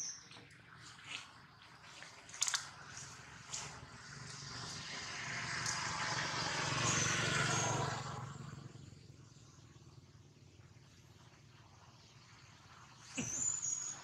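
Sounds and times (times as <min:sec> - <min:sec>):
vehicle passing by: 0:02.7 - 0:10.1.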